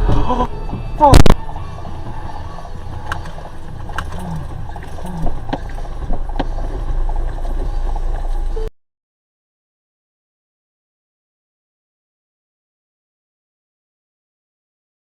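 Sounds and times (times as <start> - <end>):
road and engine rumble: 0.0 - 8.7.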